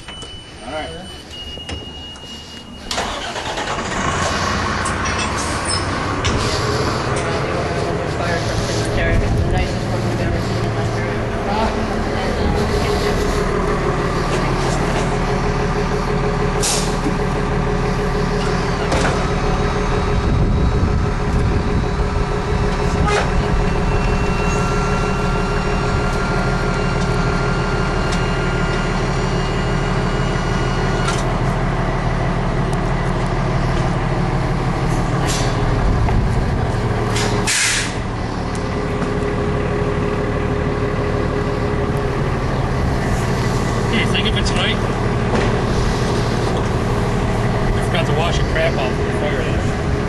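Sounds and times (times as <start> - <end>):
diesel engine running: 0.0 - 50.0
air hissing: 37.1 - 38.0.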